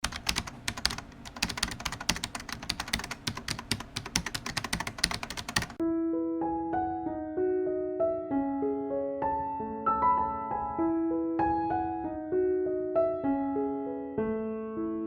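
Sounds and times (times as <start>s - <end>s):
keyboard typing clicks: 0.0s - 5.8s
gentle piano music: 0.0s - 15.0s.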